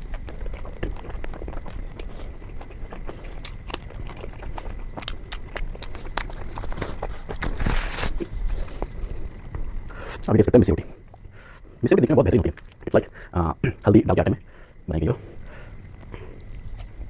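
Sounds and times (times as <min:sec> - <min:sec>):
wet chewing mouth clicks: 0:00.0 - 0:07.4.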